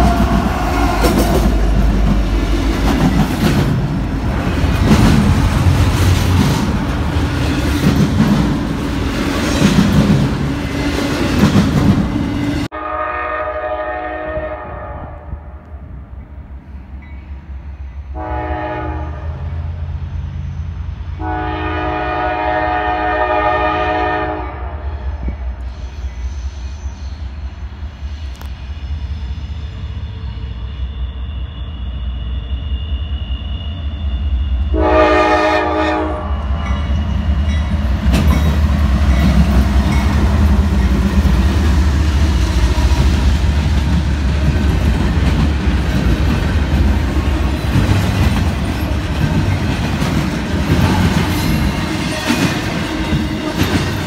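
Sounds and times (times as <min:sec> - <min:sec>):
wheels clattering on rails: 0:00.0 - 0:12.7, 0:36.4 - 0:54.0
locomotive engines rumbling: 0:00.0 - 0:13.0, 0:15.6 - 0:54.0
locomotive horn blast: 0:12.7 - 0:15.5, 0:18.1 - 0:19.6, 0:21.2 - 0:25.0, 0:34.7 - 0:36.5.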